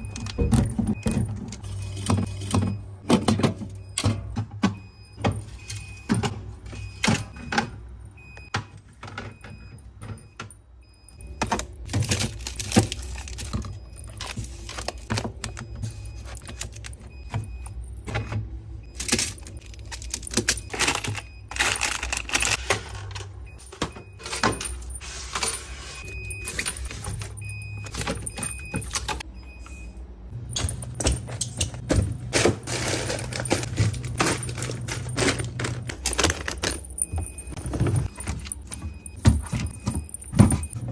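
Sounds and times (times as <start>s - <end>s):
plastic packaging rustling: 11.9s - 17.1s.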